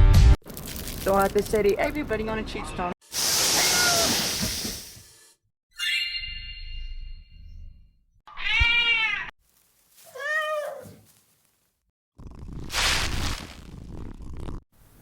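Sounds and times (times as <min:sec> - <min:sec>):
cat meowing: 0:03.6 - 0:04.2, 0:08.3 - 0:09.3, 0:10.0 - 0:11.1
ringing chime: 0:05.8 - 0:07.8.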